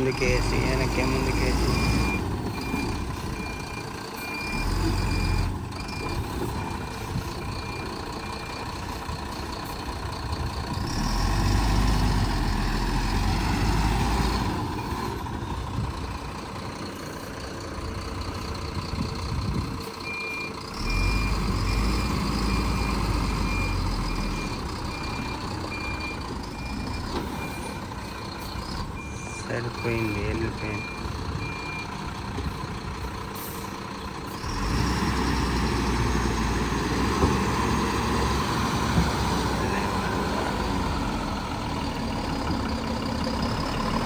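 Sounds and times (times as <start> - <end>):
truck engine revving: 0.0 - 44.0
reversing alarm beeps: 1.0 - 8.7, 20.0 - 32.0.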